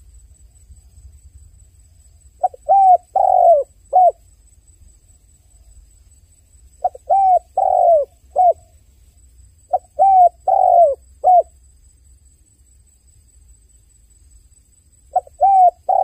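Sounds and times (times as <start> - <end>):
dove cooing: 2.4 - 4.2, 6.8 - 8.7, 9.7 - 11.5, 15.1 - 16.0.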